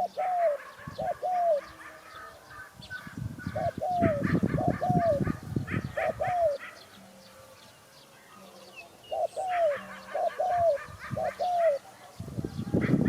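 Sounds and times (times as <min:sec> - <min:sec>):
dove cooing: 0:00.0 - 0:07.7, 0:08.3 - 0:13.0
small birds chirping: 0:00.0 - 0:13.0.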